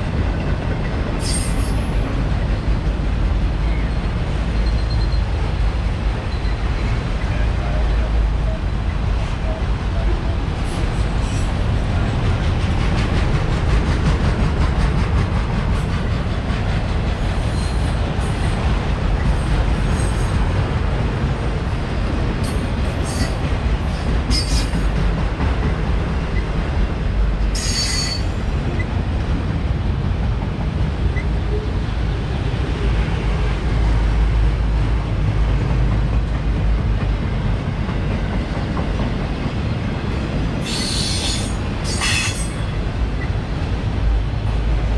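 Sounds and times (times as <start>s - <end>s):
freight train rumbling on rails: 0.0s - 44.9s
high-pitched wheel squeals: 27.6s - 28.3s.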